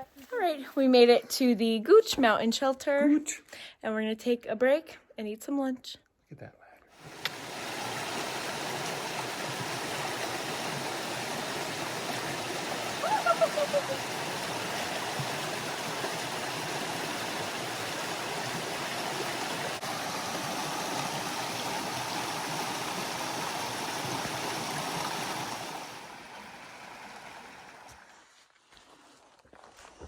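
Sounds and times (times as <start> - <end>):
stream flowing: 7.0 - 28.3.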